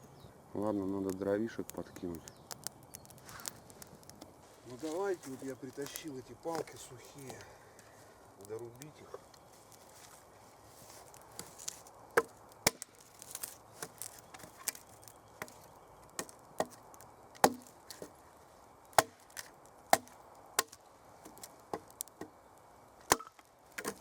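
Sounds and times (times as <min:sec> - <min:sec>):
axe chopping sticks: 0:11.4 - 0:14.8, 0:17.4 - 0:18.1, 0:19.0 - 0:21.9, 0:23.1 - 0:24.0.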